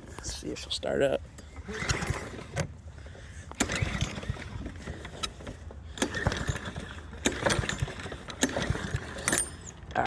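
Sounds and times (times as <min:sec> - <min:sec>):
mower engine turning over: 0:01.5 - 0:10.0
recoil starter yanked: 0:03.5 - 0:10.0.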